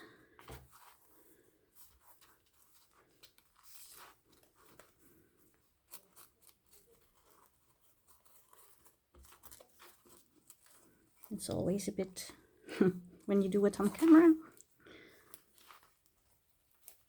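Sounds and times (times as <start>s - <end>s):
paper rustling and tapping: 0.3s - 11.0s.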